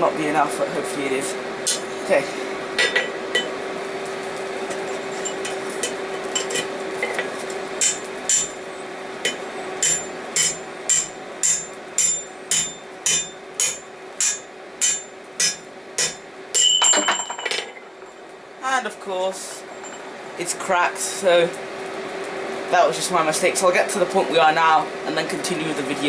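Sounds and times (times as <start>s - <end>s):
hammer striking steel: 7.8s - 8.6s, 9.2s - 17.3s.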